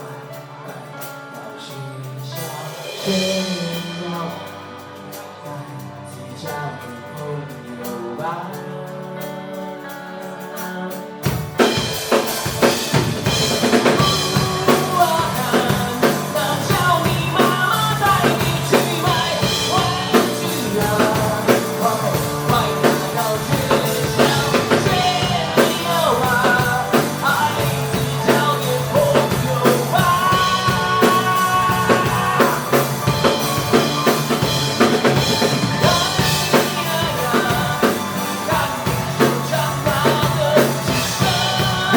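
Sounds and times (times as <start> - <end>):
drum kit and bass: 0.0 - 41.9
live rock band playing: 0.0 - 41.9
wavering lead melody: 11.0 - 41.9.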